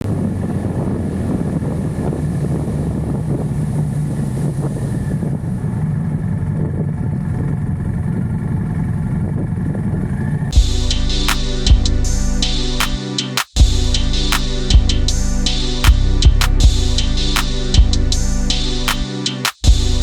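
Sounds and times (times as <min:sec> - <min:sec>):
wind noise on microphone: 0:00.0 - 0:05.6
music with drums: 0:10.5 - 0:20.0.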